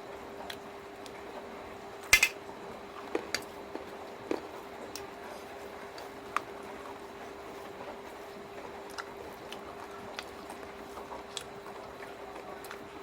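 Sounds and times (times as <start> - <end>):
clicks of eating chicken feet: 8.9 - 12.9.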